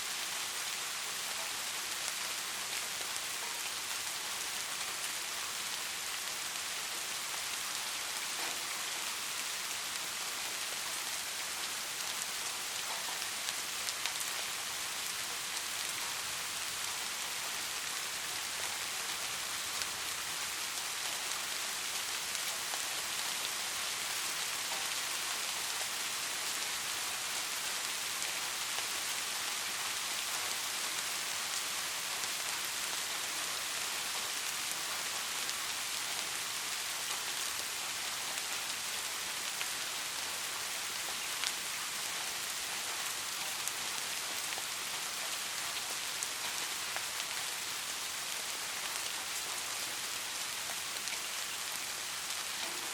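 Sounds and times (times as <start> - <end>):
steady rain hiss: 0.0 - 52.9
raindrops tapping on surfaces: 8.2 - 9.1, 12.8 - 14.2, 52.4 - 52.9.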